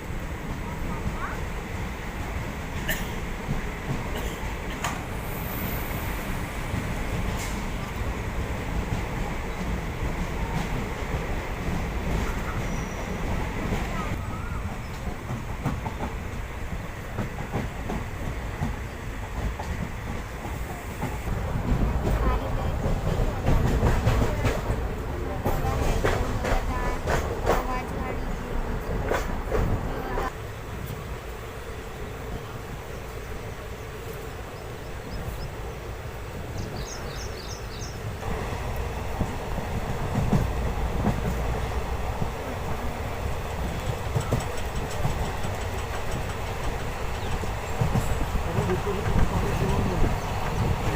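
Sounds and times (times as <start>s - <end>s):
train rumbling: 0.0s - 50.9s
wheels clattering over rails: 38.3s - 50.9s.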